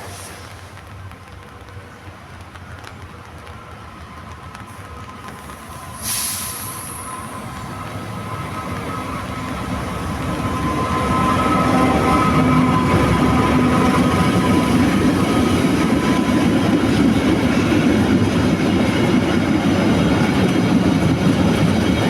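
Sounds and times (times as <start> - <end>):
train approaching on rails: 0.0 - 22.0
sudden hiss: 5.5 - 7.4.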